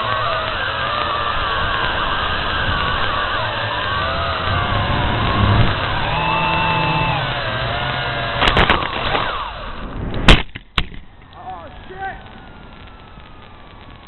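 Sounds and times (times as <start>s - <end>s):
drone propeller motors whining: 0.0s - 10.3s
drone knocking against branch: 2.8s - 11.0s
loud drone crash impact: 4.1s - 8.6s.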